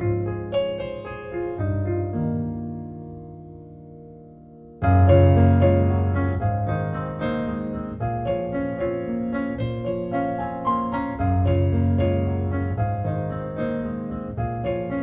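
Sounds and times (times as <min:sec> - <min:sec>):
slow solo piano music: 0:00.0 - 0:15.0.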